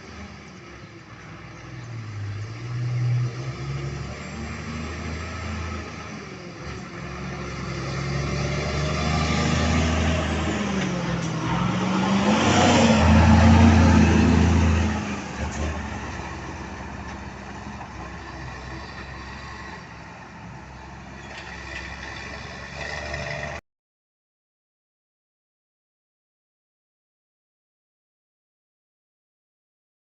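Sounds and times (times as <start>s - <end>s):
truck diesel engine under load: 0.0s - 23.6s.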